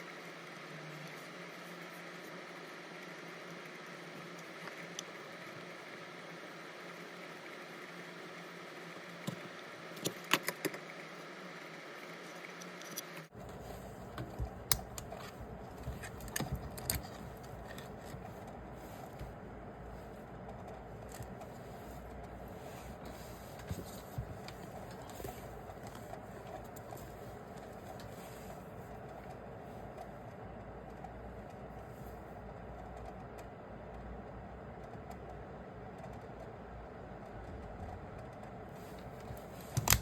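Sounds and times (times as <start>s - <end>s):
small parts clicking and rattling: 12.3s - 19.2s.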